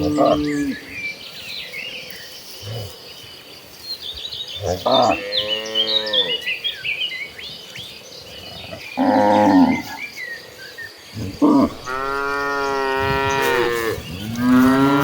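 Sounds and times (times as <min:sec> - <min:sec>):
cows mooing: 0:00.0 - 0:00.8, 0:11.3 - 0:15.0
small birds chirping: 0:00.0 - 0:15.0.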